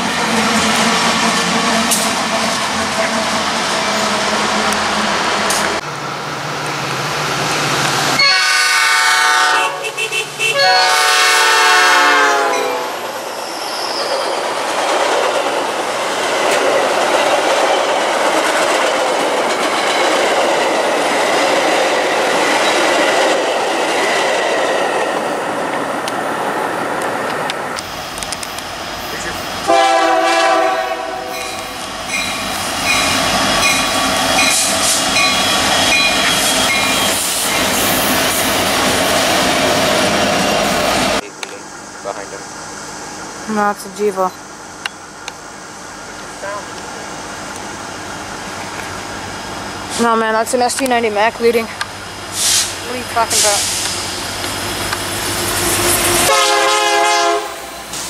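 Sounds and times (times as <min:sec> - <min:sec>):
diesel locomotives running past: 0:00.0 - 0:58.0
short train horn blast: 0:08.2 - 0:13.0, 0:29.7 - 0:31.7, 0:56.2 - 0:57.7
train air horn: 0:08.2 - 0:13.0, 0:29.7 - 0:31.6, 0:56.2 - 0:57.7.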